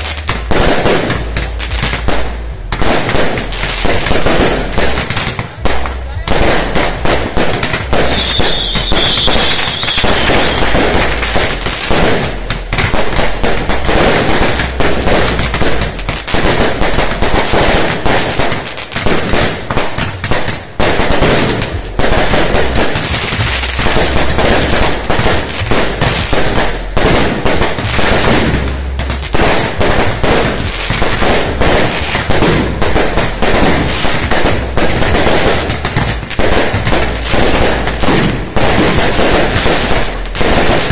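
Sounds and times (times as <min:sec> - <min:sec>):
firecrackers and fireworks bangs: 0:00.0 - 0:40.9
high firework whistle: 0:08.0 - 0:10.8.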